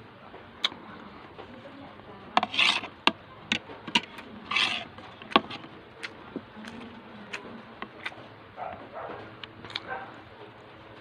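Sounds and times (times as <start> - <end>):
utensils clinking on a plate: 3.5 - 5.7.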